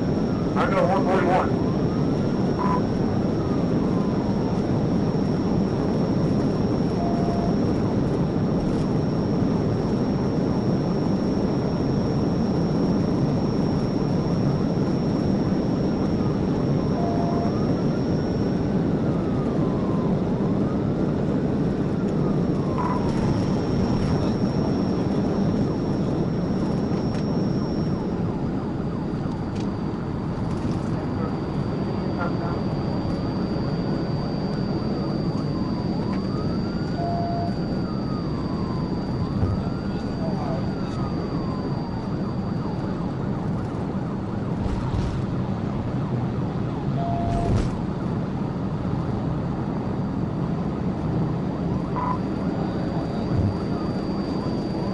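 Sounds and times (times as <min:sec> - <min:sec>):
faint siren wail: 0:00.0 - 0:54.9
short electronic beeps: 0:00.6 - 0:03.0, 0:06.1 - 0:07.8, 0:11.2 - 0:18.6, 0:22.7 - 0:28.1, 0:30.4 - 0:41.9, 0:47.0 - 0:47.6, 0:51.9 - 0:54.9.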